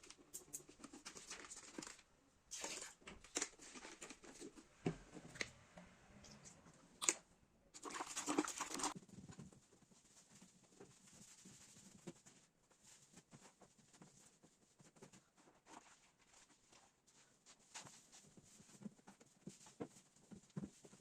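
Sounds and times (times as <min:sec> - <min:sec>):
rustling: 0:08.8 - 0:21.0.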